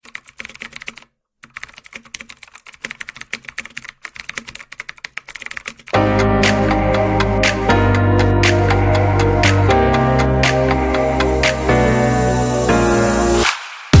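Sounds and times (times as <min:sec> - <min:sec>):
keyboard typing clicks: 0:00.0 - 0:09.7
music: 0:06.0 - 0:14.0.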